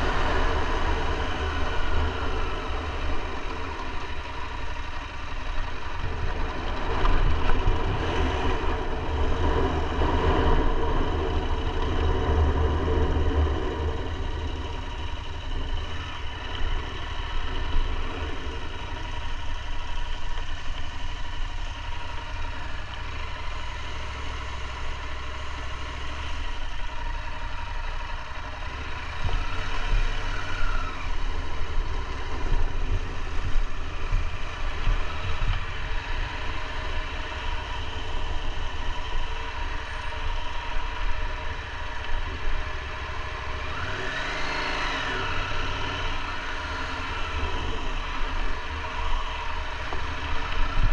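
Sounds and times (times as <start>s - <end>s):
motorcycle engine running: 0.0s - 50.9s
road and air noise: 0.0s - 50.9s.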